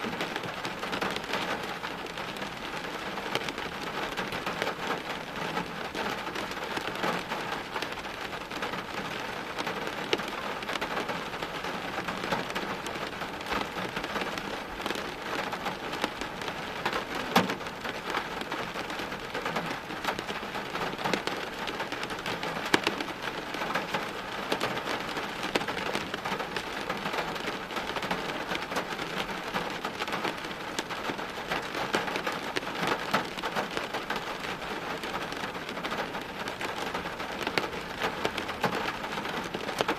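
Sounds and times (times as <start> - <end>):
rain on hard surfaces: 0.0 - 39.9.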